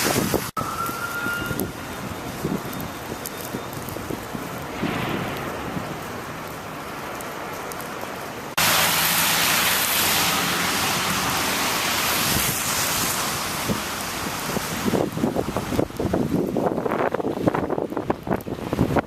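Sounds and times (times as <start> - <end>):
blizzard wind and snow hiss: 0.0 - 19.0.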